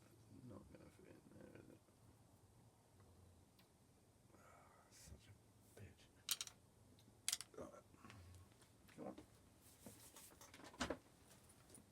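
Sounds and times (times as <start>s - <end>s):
clicks of plastic model parts: 6.3s - 6.5s, 7.3s - 7.5s.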